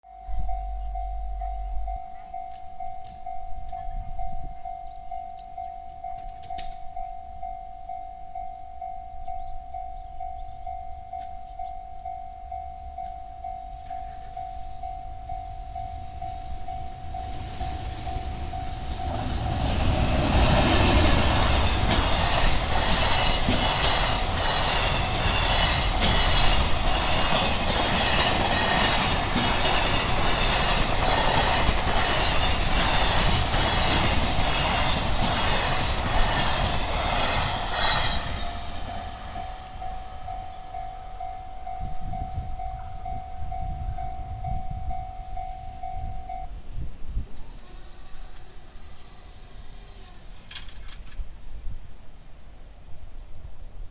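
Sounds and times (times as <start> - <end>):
train wheels clattering: 15.6 - 40.7
level crossing bell ringing: 38.4 - 46.5.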